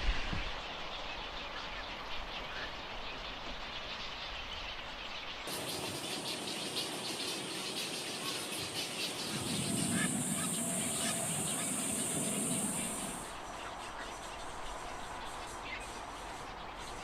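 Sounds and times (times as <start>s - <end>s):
herons calling: 5.5s - 13.5s
steady high hiss: 5.5s - 16.2s.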